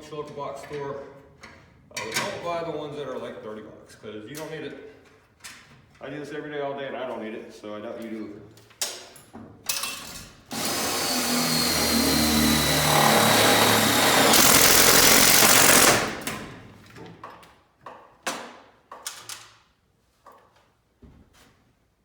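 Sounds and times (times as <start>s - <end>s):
impact driver drilling steel: 10.5s - 16.5s.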